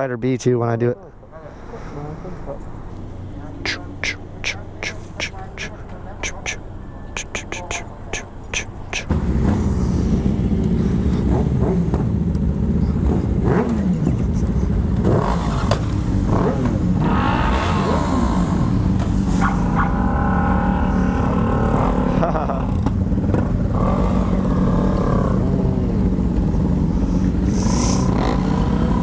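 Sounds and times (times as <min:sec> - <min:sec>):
motorcycle engine revving: 0:08.5 - 0:29.0.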